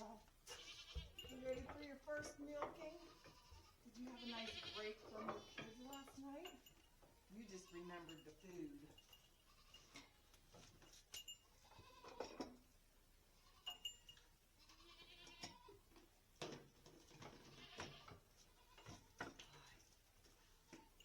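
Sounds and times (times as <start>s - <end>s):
goat kids bleating faintly: 0.0s - 1.7s, 2.8s - 6.1s, 9.4s - 10.2s, 11.6s - 12.4s, 13.3s - 13.9s, 14.6s - 16.0s, 17.4s - 19.8s
light clinks: 0.5s - 12.8s, 13.5s - 14.4s.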